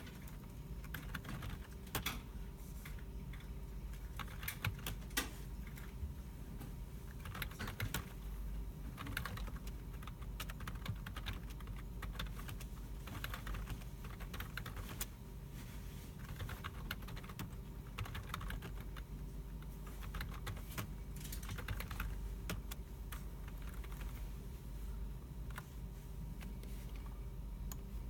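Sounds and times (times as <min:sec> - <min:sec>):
keyboards typing: 0:00.0 - 0:02.3, 0:02.9 - 0:06.0, 0:07.1 - 0:15.1, 0:16.1 - 0:24.2
steady low hum: 0:00.0 - 0:28.0.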